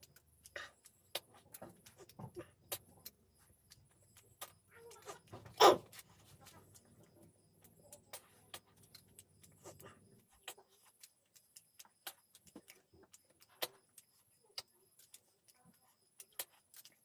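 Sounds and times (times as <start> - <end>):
chewing clicks and smacks: 0.0 - 17.0.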